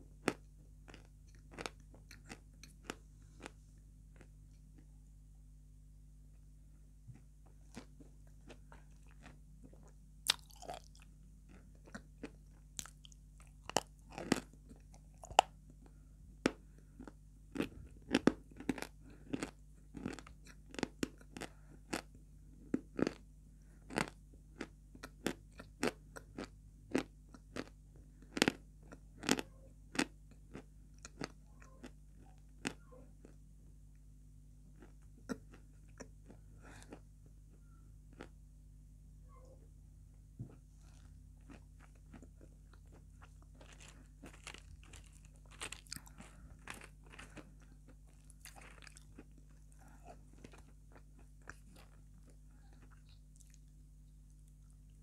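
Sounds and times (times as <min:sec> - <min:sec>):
chewing and crunching chalky chunks: 0:00.0 - 0:05.1, 0:07.1 - 0:38.5, 0:40.4 - 0:55.0.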